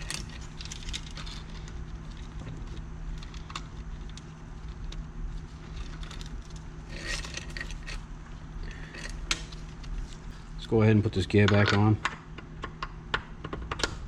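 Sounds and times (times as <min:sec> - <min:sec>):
metal parts clinking and rattling: 0:00.0 - 0:10.2
steady low hum: 0:00.0 - 0:14.0.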